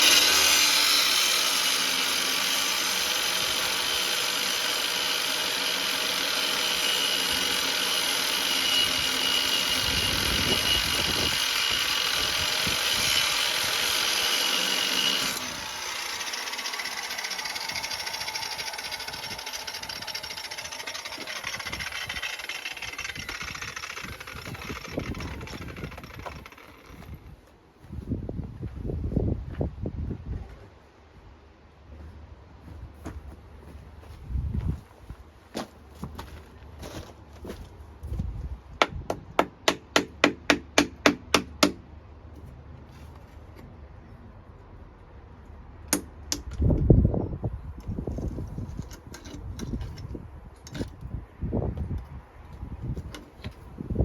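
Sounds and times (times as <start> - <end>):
angle grinder cutting pipe: 0.0 - 27.3
hard hammer strikes: 38.8 - 41.8.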